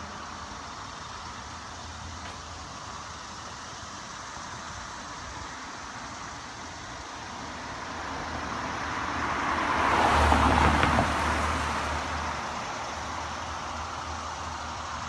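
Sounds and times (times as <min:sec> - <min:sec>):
car driving past: 0:08.0 - 0:13.0.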